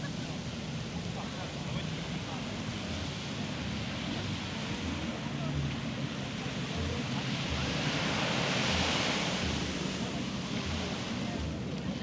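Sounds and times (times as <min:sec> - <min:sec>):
waves breaking on beach: 0:06.1 - 0:12.0.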